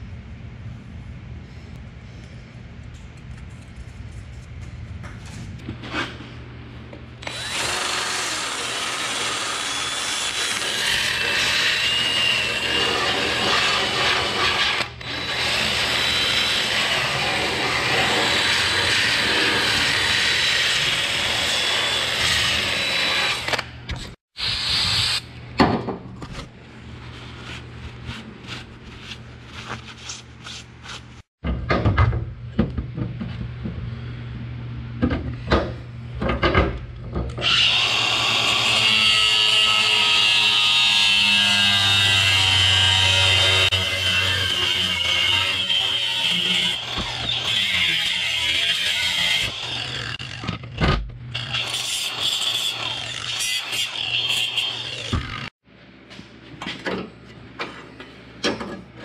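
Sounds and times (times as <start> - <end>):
angle grinder cutting pipe: 7.2 - 25.2, 37.4 - 50.6, 51.3 - 55.5
drill sanding metal: 7.3 - 23.5.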